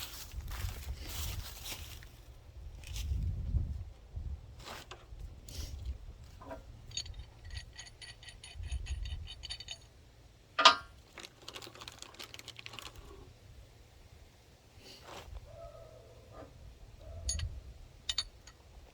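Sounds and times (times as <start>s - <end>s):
ringing metal clicks: 6.9s - 10.0s, 10.6s - 11.0s, 17.0s - 18.6s
sharp metal clank: 10.6s - 10.9s.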